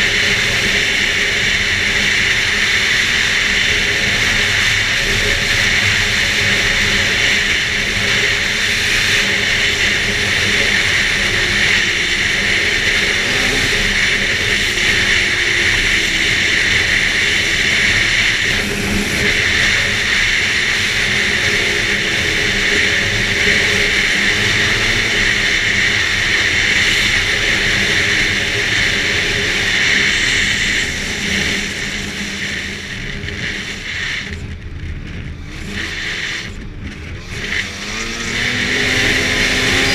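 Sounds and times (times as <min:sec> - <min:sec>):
snowmobile engine running: 0:00.0 - 0:39.9
snowmobile track noise: 0:00.0 - 0:39.9.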